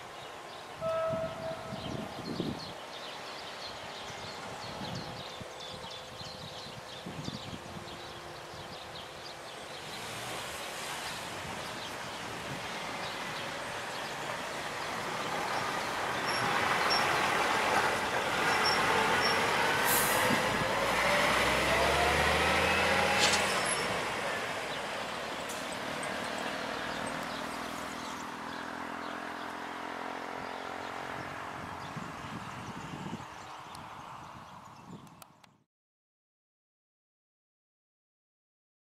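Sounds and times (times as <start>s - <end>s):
road vehicle passing with whine: 7.7s - 34.3s.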